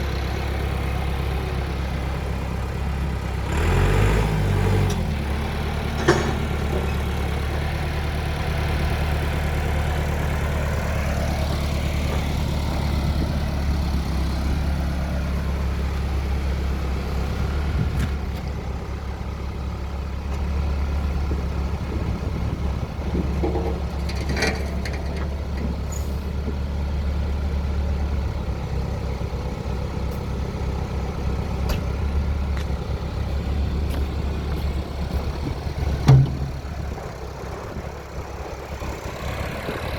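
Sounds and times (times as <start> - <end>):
diesel engine running: 0.0 - 39.9
sharp metallic knocks: 36.0 - 36.7.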